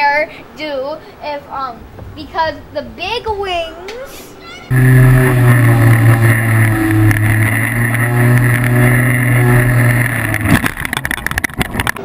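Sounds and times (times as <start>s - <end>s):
model plane motors droning: 4.7s - 12.0s.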